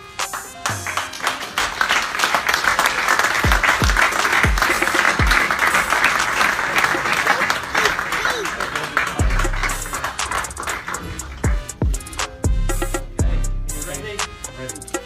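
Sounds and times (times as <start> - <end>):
loud background music: 0.0 - 6.7, 9.0 - 15.0
audience applauding: 0.0 - 12.0
deep bass notes dropping: 9.2 - 9.9.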